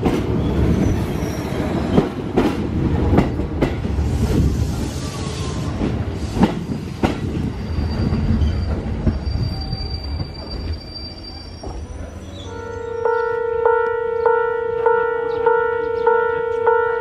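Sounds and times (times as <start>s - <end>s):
electric train rumbling past: 0.0s - 17.0s
high wheel squeal: 7.5s - 13.3s.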